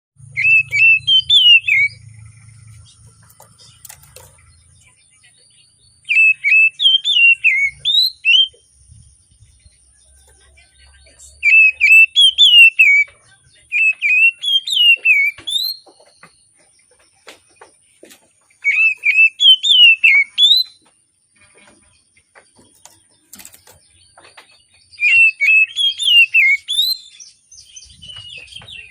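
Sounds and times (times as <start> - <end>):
bird singing whistled notes: 0.2 - 3.1, 4.6 - 10.3, 10.9 - 16.4, 18.6 - 20.8, 24.6 - 28.9.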